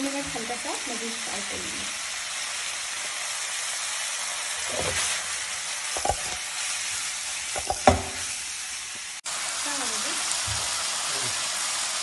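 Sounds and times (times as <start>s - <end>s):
food sizzling in a wok: 0.0s - 12.0s
wok knocks: 6.0s - 6.4s, 7.6s - 8.3s.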